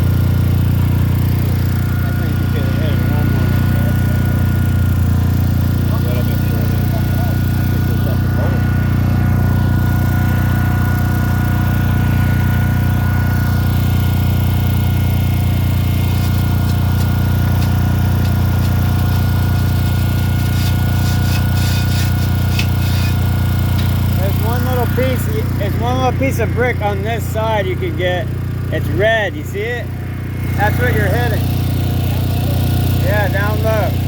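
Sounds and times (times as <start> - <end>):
core drill grinding into brick: 0.0 - 27.6, 30.4 - 34.0
short scraping ticks: 15.9 - 24.2.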